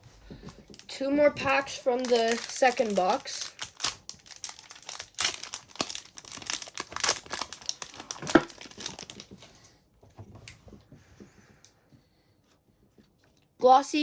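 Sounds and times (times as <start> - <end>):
wrapper crinkling as torn open: 0.7 - 9.5.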